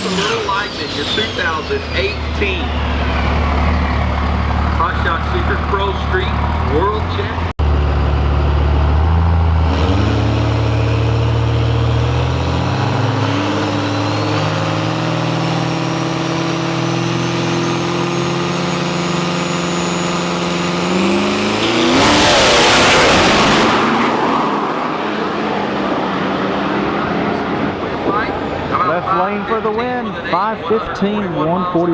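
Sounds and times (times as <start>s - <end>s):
high whine: 0.0s - 7.4s
drag racing engines revving: 0.0s - 31.9s
engines launching at full throttle: 0.0s - 31.9s.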